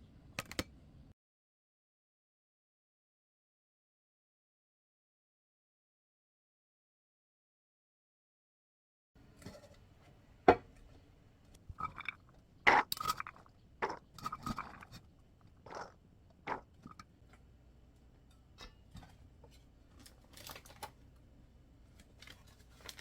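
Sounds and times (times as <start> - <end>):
dishes and utensils clinking: 9.3 - 9.8.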